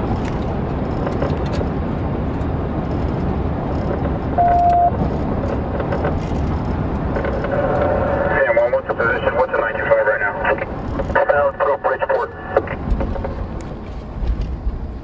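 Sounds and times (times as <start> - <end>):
car road and engine rumble: 0.0 - 15.0
short beep: 4.4 - 5.0.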